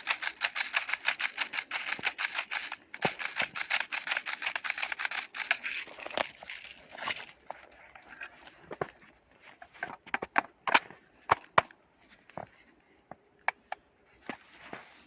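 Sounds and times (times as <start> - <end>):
toy gun parts clicking: 0.0 - 8.2.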